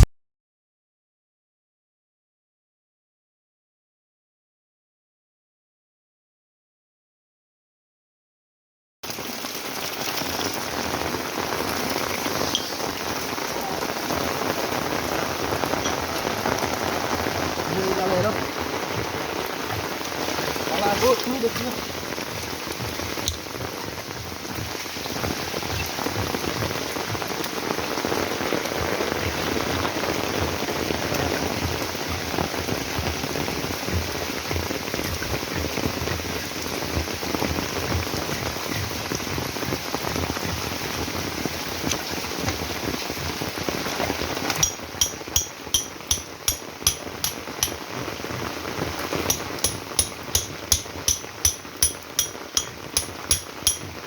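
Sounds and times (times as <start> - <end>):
heavy rain falling: 9.0 - 54.0
sharp ticks: 44.6 - 47.8, 49.3 - 54.0.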